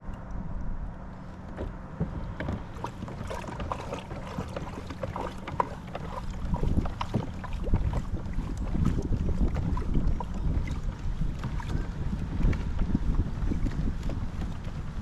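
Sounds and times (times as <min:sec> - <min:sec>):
wind rumbling on microphone: 0:00.0 - 0:15.0
water lapping against kayak hull: 0:01.2 - 0:15.0
small splashy ticks: 0:02.4 - 0:11.8.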